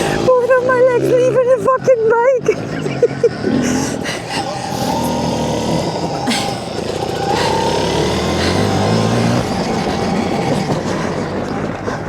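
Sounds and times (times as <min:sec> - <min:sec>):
track noise: 0:00.0 - 0:12.0
rushing wind: 0:02.4 - 0:12.0
electric motorbike motor whine: 0:02.8 - 0:12.0.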